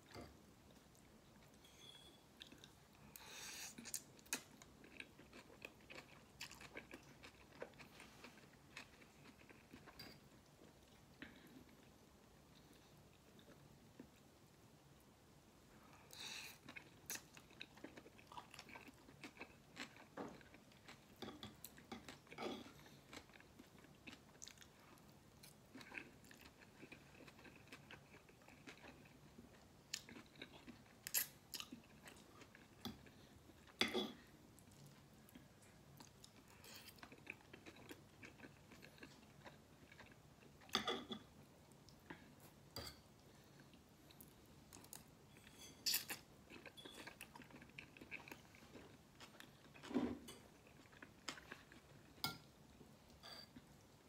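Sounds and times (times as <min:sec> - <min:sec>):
person chewing and slurping noodles: 0:16.1 - 0:40.7, 0:45.9 - 0:50.0.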